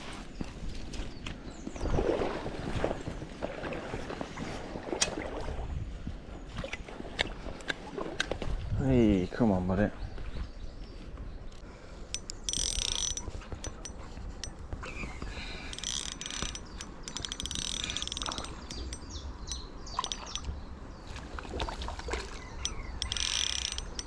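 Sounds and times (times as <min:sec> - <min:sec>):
reel clicks: 0:11.5 - 0:14.7, 0:15.6 - 0:20.5, 0:22.5 - 0:24.0
fishing reel whirring: 0:12.2 - 0:14.6, 0:15.7 - 0:20.5, 0:22.6 - 0:24.0.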